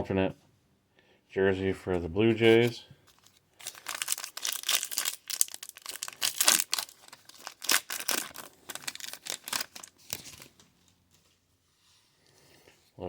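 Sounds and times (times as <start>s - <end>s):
cards being flipped through: 2.4s - 11.0s.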